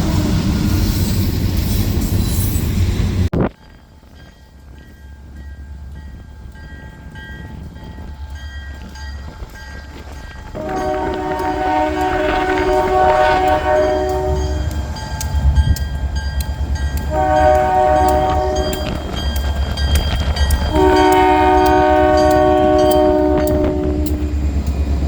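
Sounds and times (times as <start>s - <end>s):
locomotive air horn: 0.0s - 0.8s, 10.6s - 14.8s, 17.0s - 19.0s, 20.6s - 24.3s
train rumbling: 0.0s - 25.0s.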